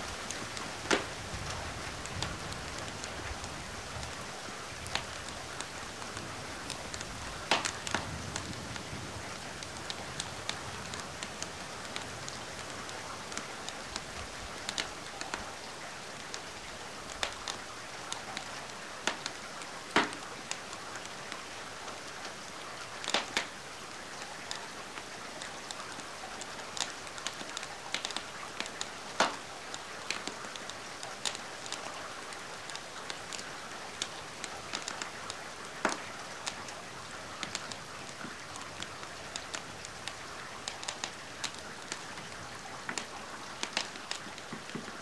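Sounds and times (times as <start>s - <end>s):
steady rain: 0.0s - 45.0s
wood fire crackling: 0.0s - 45.0s.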